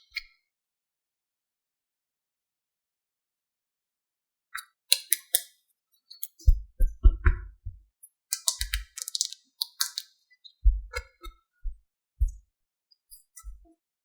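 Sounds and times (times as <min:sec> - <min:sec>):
plastic toys clicking and clattering: 0:04.9 - 0:05.4, 0:08.3 - 0:10.1.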